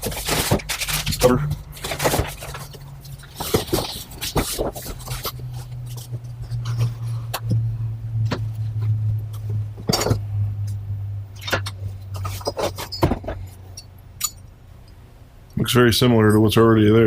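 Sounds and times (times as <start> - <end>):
parts and packaging handled: 0.0 - 7.7, 11.4 - 14.4
knocks clicks and rustles: 0.0 - 14.6
steady low hum: 0.0 - 17.0.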